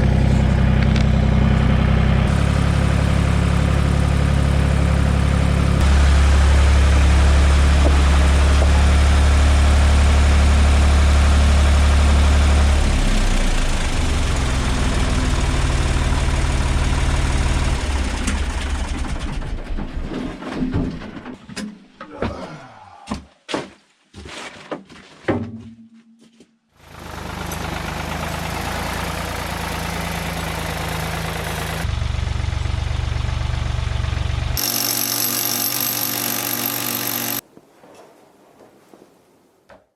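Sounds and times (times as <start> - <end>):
engine sputtering: 0.0 - 19.8, 26.9 - 37.4
tractor engine running: 0.0 - 20.0, 26.8 - 37.4.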